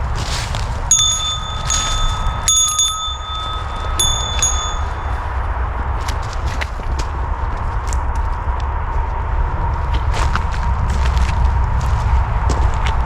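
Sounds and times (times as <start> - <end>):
small metal bell ringing: 0.9 - 5.5.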